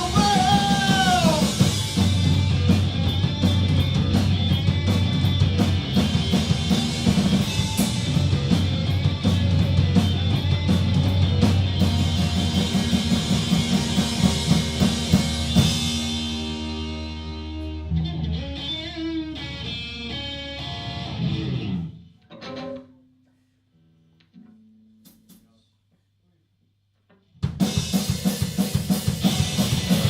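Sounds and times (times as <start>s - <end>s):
live rock band playing: 0.0s - 22.6s, 27.5s - 30.0s.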